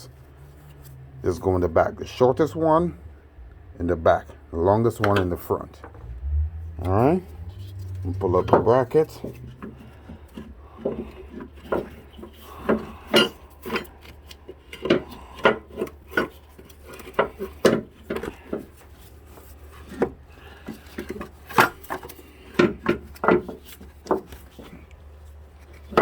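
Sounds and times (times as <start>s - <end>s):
metal scraping: 5.9s - 17.6s.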